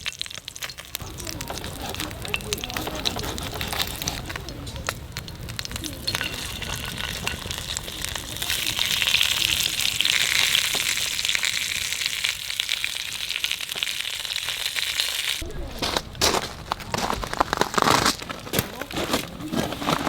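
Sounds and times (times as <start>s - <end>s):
food sizzling in a hot pan: 0.0s - 2.7s, 3.8s - 15.4s.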